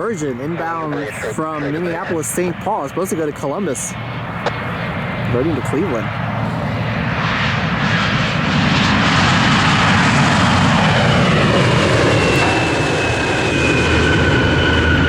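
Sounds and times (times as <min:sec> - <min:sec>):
high jet whine: 0:00.0 - 0:15.0
jet engine roar: 0:00.0 - 0:15.0.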